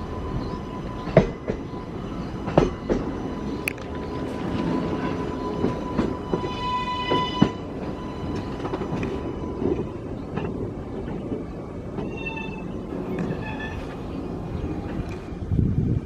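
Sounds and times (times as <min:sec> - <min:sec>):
high wheel squeal: 0:00.0 - 0:10.1, 0:12.0 - 0:14.3
subway train rumbling: 0:00.0 - 0:16.0.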